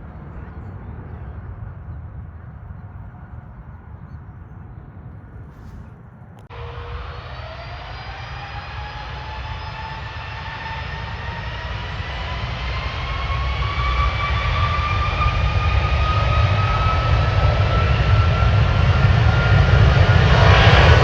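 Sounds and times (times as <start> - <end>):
jet engines spooling up: 5.6 - 21.0.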